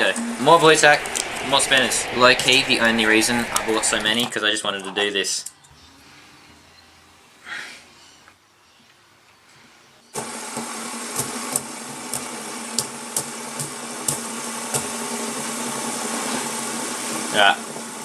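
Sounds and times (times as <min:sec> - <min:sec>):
fidget spinners whirring: 0:00.0 - 0:04.4.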